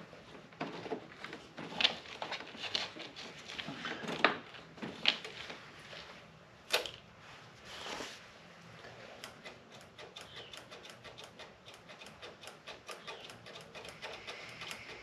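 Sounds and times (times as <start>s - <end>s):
tools clicking on metal parts: 9.2s - 15.0s.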